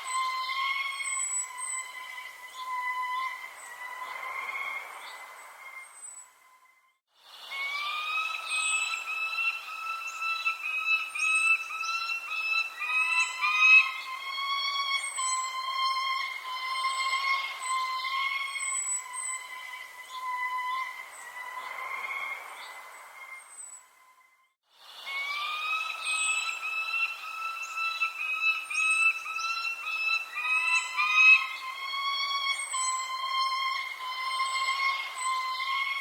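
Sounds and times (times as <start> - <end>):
high falling bird chirps: 0.0 - 6.5, 7.4 - 23.9, 25.0 - 36.0
birds calling horn-like notes: 25.1 - 36.0.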